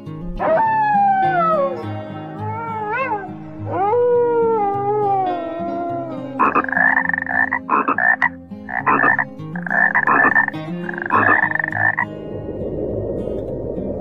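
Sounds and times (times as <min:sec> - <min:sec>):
frog croaking: 0:06.2 - 0:12.2.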